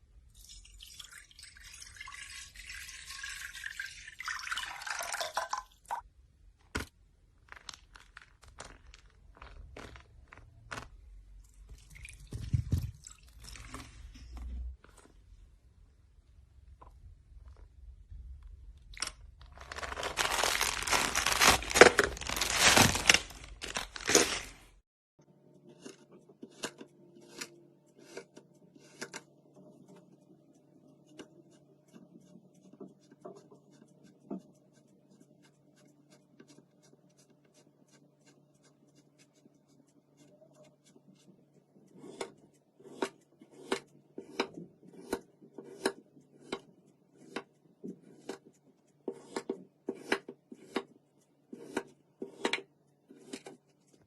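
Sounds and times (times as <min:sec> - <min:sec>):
tearing and crinkling: 0:07.3 - 0:11.0, 0:19.4 - 0:24.8.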